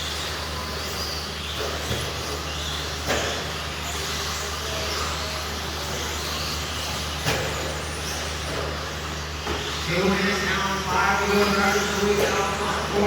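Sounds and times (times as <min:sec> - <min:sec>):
toy truck motor whine: 0:00.0 - 0:03.0, 0:03.6 - 0:07.0.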